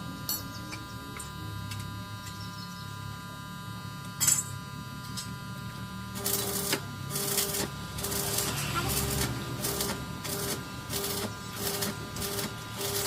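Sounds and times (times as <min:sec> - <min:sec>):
electrical machine hum: 0:00.0 - 0:13.0
sharp noisy burst: 0:06.2 - 0:13.0.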